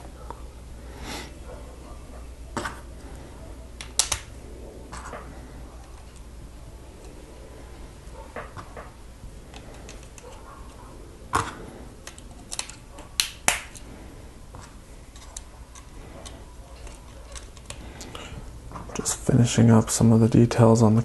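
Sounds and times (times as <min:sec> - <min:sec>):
plastic building bricks clicking: 0:03.8 - 0:04.3, 0:11.4 - 0:13.8, 0:15.1 - 0:18.2.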